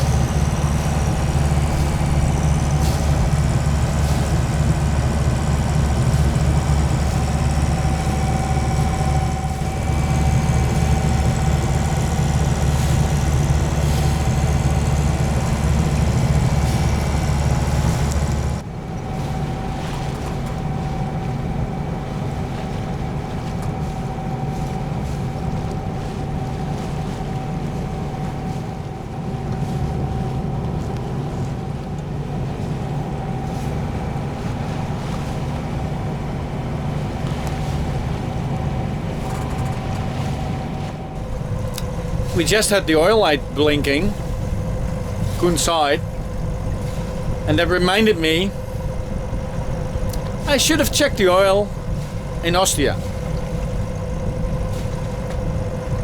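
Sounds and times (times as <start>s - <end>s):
light steady hum: 0.0s - 18.6s, 33.8s - 56.0s
boat engine drone: 0.0s - 56.0s.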